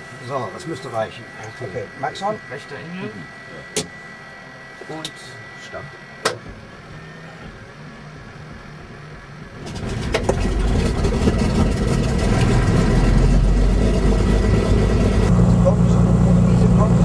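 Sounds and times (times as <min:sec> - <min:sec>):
engine firing with ragged bangs: 0:09.6 - 0:17.0
piston aircraft engine starting: 0:09.6 - 0:17.0.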